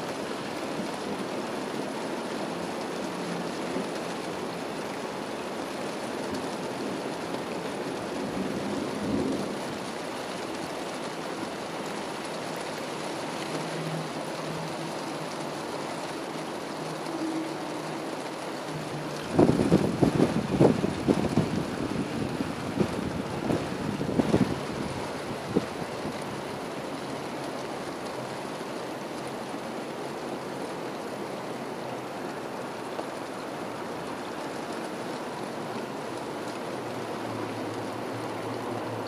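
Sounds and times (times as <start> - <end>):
rain falling: 0.0 - 39.0
thunder rumble: 18.8 - 26.2.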